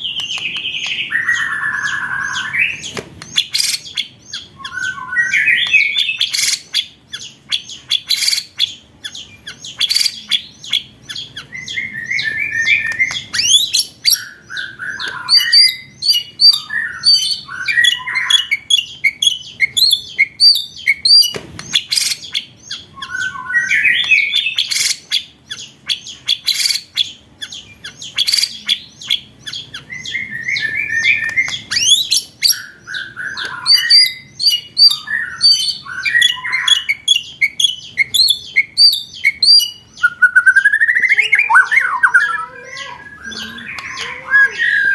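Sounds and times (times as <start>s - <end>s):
songbird song: 0.0s - 44.9s.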